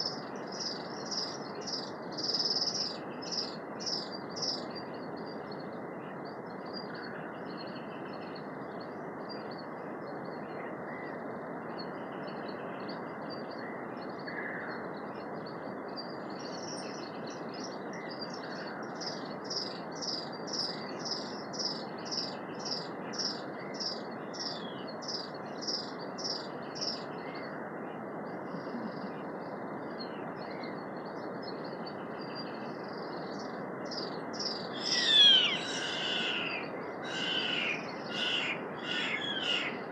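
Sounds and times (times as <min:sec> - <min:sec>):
birds singing: 0:00.0 - 0:09.7, 0:11.8 - 0:27.6, 0:28.5 - 0:39.9.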